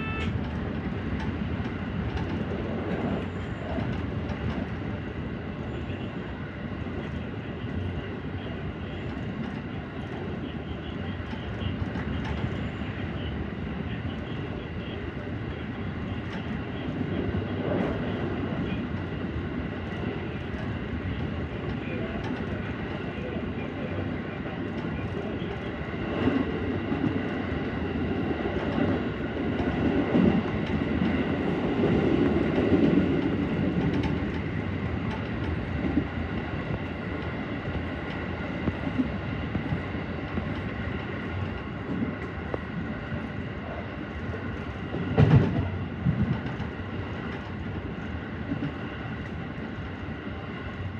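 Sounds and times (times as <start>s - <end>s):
train rolling noise: 0.0s - 50.9s.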